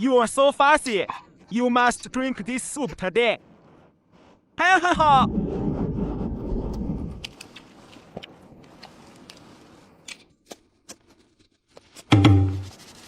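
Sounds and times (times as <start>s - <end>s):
low rumble: 5.0s - 7.4s.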